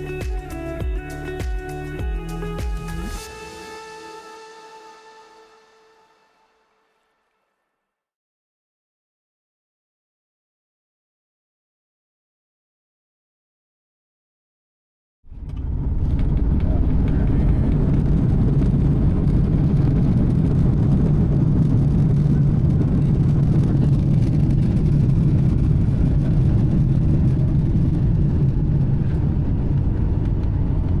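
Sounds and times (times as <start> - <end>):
vehicle rumble: 15.3 - 31.0.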